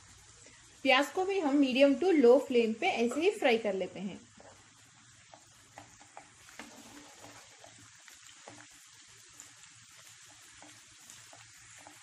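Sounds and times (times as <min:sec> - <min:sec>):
potatoes and onion sizzling in oil: 0:00.0 - 0:12.0
spatula scraping and tapping a pan: 0:04.4 - 0:12.0.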